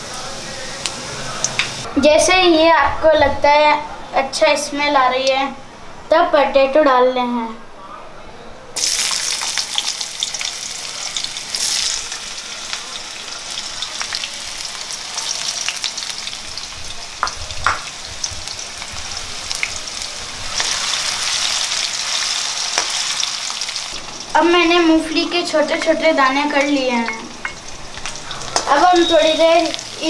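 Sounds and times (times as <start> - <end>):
potatoes sizzling in oil: 8.8 - 30.0.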